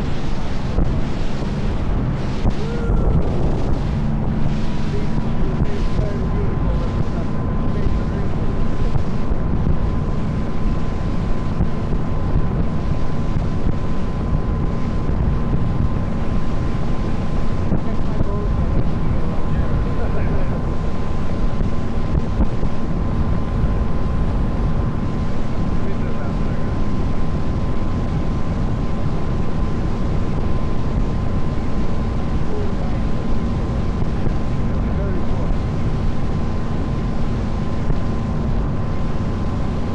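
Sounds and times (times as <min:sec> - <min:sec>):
boat engine running: 0:00.0 - 0:39.9
faint steady whine: 0:00.0 - 0:39.9
rushing water: 0:00.0 - 0:39.9
wind buffeting microphone: 0:00.0 - 0:39.9.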